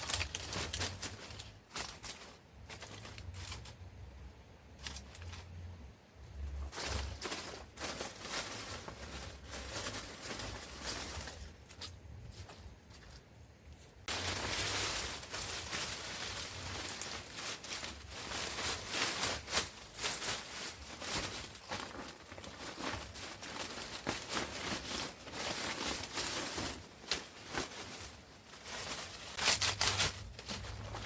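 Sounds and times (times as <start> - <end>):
rustling and crinkling: 0.0 - 31.0.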